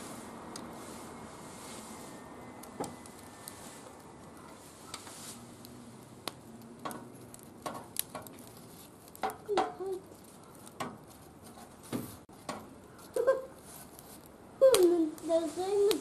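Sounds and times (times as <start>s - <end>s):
steady hiss: 0.0s - 6.5s
wood fire crackling: 0.0s - 16.0s
sharp fire pops: 4.9s - 10.0s.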